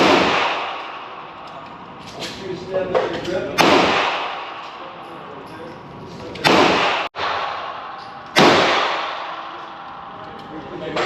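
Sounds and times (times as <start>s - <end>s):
gunshots with echo: 0.0s - 1.2s, 3.6s - 4.7s, 6.4s - 9.6s.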